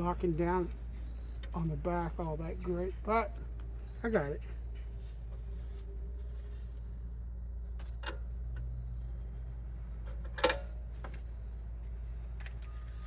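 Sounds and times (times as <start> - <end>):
steady low hum: 0.0 - 13.0
tools clicking and knocking: 10.0 - 11.3.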